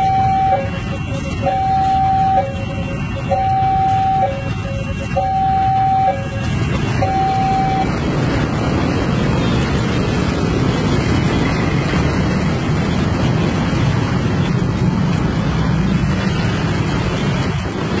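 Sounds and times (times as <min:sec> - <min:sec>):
two-tone warning signal: 0:00.0 - 0:08.1
traffic engine rumble: 0:00.0 - 0:18.0.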